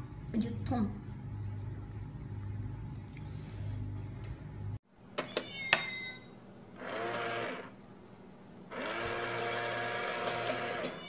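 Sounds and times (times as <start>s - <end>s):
small electric motor whirring: 6.8s - 7.7s, 8.7s - 11.0s.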